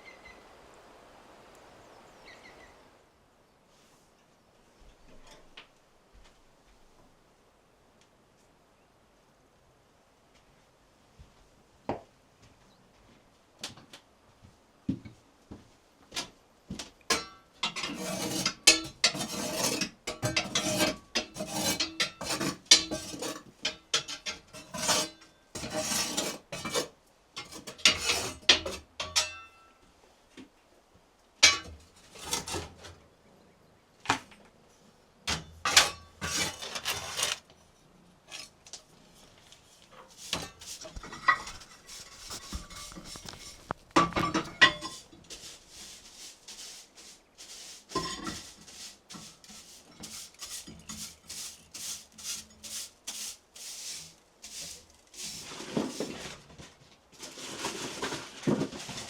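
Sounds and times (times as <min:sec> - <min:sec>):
rasping scraping strokes: 0:17.6 - 0:28.9, 0:35.7 - 0:37.5, 0:39.5 - 0:43.9, 0:44.6 - 0:56.4.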